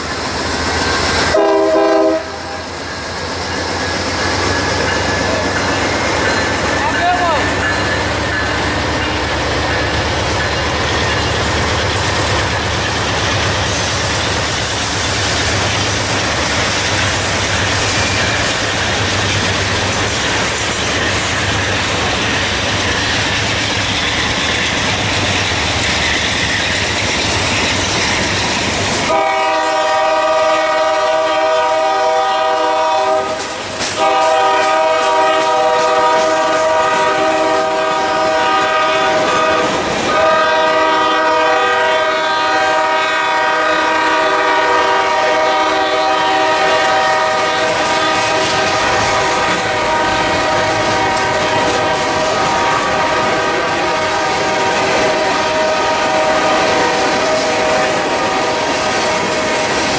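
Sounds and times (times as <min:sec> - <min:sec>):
locomotive horn chord: 0:01.3 - 0:02.6, 0:29.1 - 0:33.4, 0:34.0 - 0:59.4
wheels clattering over rail joints: 0:03.4 - 0:29.1.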